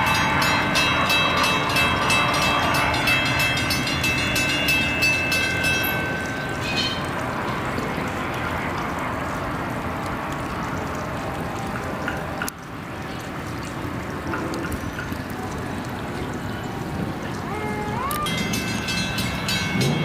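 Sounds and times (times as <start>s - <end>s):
train wheels on rails: 0.0s - 7.2s, 18.3s - 20.0s.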